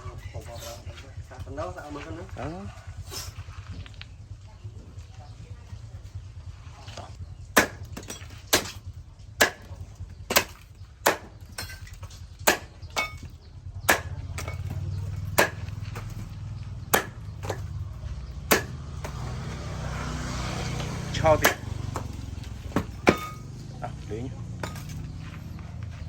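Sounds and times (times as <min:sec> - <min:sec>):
machete chopping: 0:07.5 - 0:23.6, 0:24.6 - 0:25.3.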